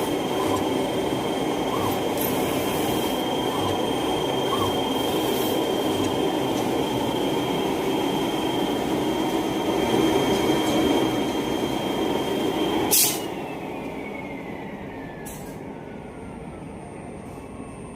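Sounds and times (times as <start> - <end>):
machine rumbling with high whine: 0.0 - 7.2.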